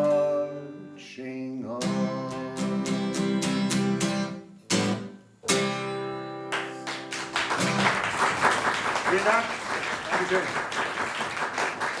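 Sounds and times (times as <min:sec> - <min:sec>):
acoustic guitar strumming: 0:00.0 - 0:01.0, 0:01.7 - 0:07.9.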